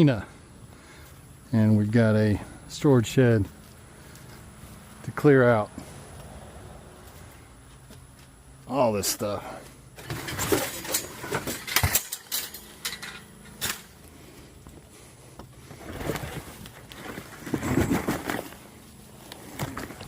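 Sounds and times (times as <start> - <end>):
scraping and rustling: 10.0 - 14.4, 15.0 - 20.0.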